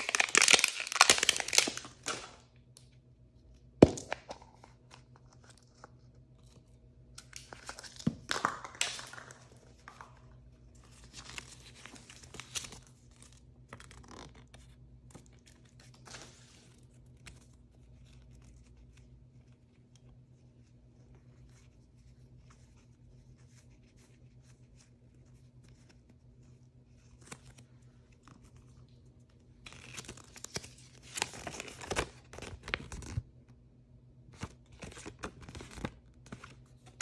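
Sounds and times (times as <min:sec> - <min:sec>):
packaging tearing and crinkling: 0:00.0 - 0:02.4.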